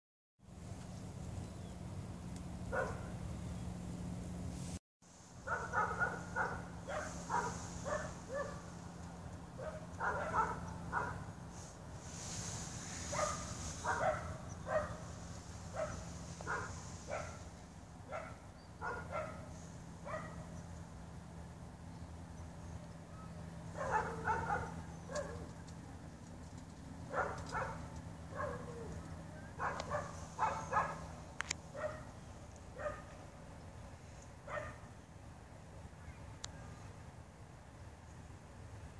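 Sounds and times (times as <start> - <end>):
steady low hum: 0.4 - 38.9
dog barking: 2.7 - 3.2, 5.4 - 8.7, 9.6 - 11.3, 13.1 - 15.0, 15.7 - 17.4, 18.1 - 20.5, 23.7 - 25.5, 27.1 - 28.9, 29.5 - 31.1, 31.7 - 32.1, 32.8 - 33.2, 34.5 - 34.9.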